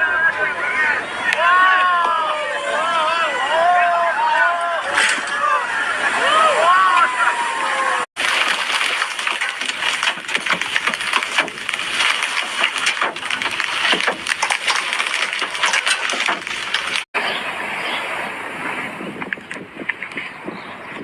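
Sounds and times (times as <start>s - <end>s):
floodwater rushing and splashing: 4.8s - 21.0s.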